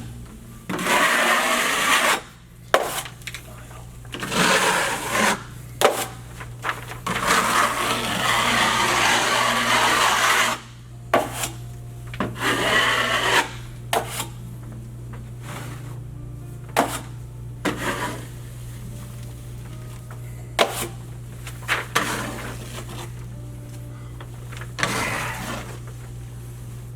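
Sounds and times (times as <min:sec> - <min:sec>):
drywall knife scraping compound: 0:00.7 - 0:03.2, 0:04.2 - 0:06.2, 0:07.1 - 0:11.6, 0:12.3 - 0:14.4, 0:17.7 - 0:18.3, 0:22.0 - 0:23.1, 0:24.8 - 0:25.8.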